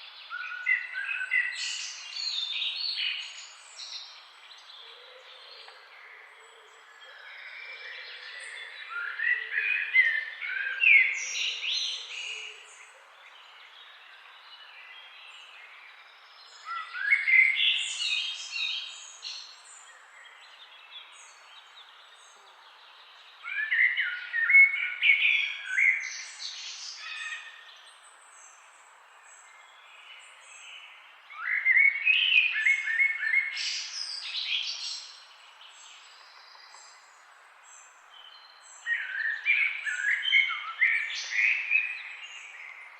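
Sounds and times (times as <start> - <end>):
songbird singing: 0.0 - 42.9.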